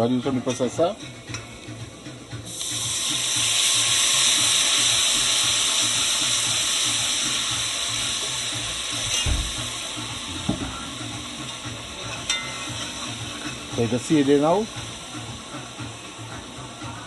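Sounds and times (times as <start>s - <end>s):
liquid sizzling in hot oil: 0.0s - 17.0s
low thump: 9.1s - 9.7s.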